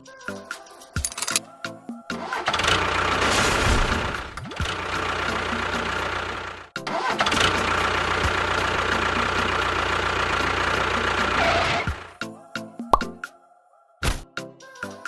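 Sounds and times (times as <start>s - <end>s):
engine running: 2.2s - 12.2s.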